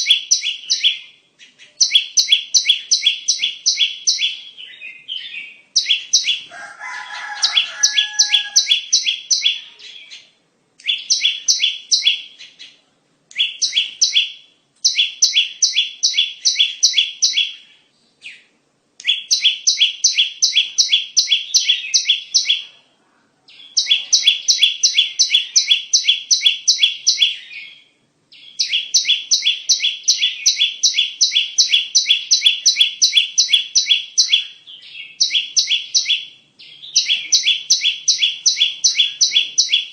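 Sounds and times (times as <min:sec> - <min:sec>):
lower bird call: 0:00.0 - 0:10.0
bird chirping: 0:00.0 - 0:39.9.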